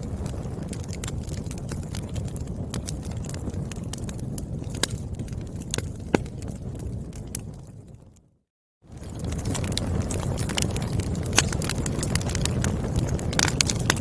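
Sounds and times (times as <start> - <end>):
fire rumbling: 0.0 - 14.0
firewood crackling and popping: 0.0 - 14.0.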